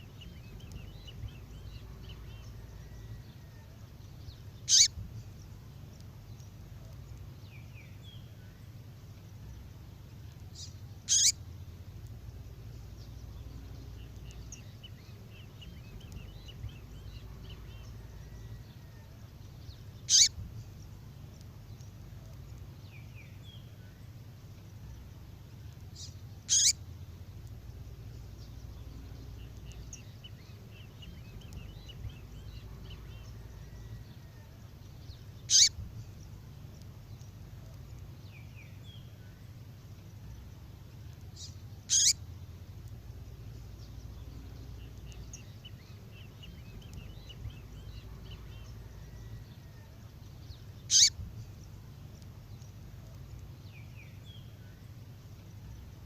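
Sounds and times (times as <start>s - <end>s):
steady low hum: 0.0s - 56.0s
high bird twittering: 4.6s - 5.0s, 10.6s - 11.4s, 20.0s - 20.5s, 26.0s - 26.9s, 35.1s - 35.8s, 41.3s - 42.2s, 50.8s - 51.3s
sharp bird chip calls: 4.6s - 5.0s, 10.6s - 11.4s, 20.0s - 20.4s, 26.0s - 26.8s, 35.4s - 35.8s, 41.4s - 42.2s, 50.8s - 51.2s.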